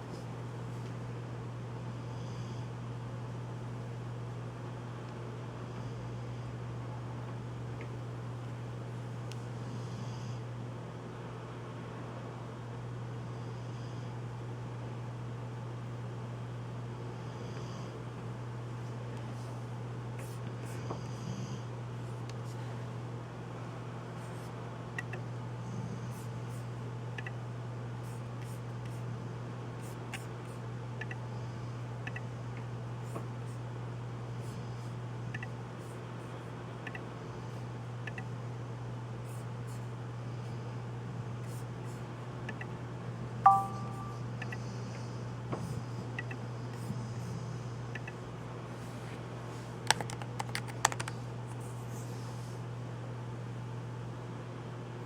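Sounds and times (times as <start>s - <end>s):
steady low hum: 0.0s - 55.0s
mouse and keyboard clicks: 27.2s - 27.4s, 36.8s - 37.0s, 49.8s - 51.2s
low hum: 43.4s - 44.4s
two-tone chime: 43.5s - 44.2s.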